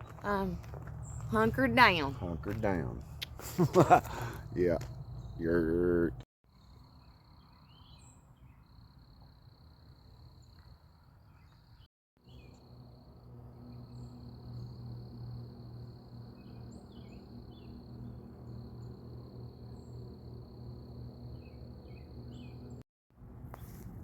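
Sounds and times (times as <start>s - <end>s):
low hum: 0.0s - 6.2s, 12.3s - 24.0s
insects trilling: 0.1s - 10.7s, 12.3s - 22.8s.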